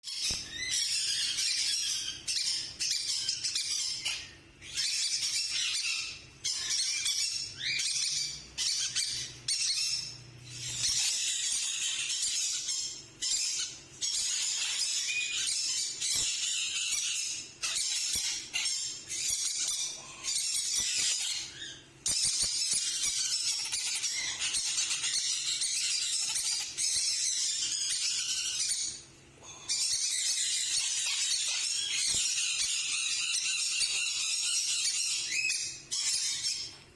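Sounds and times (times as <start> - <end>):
parakeets squawking: 0.1 - 36.9.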